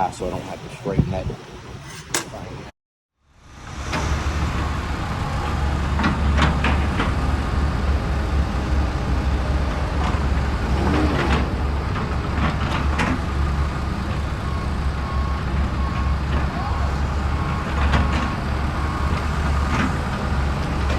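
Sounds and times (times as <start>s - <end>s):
short scrapes and clicks: 1.8s - 2.4s.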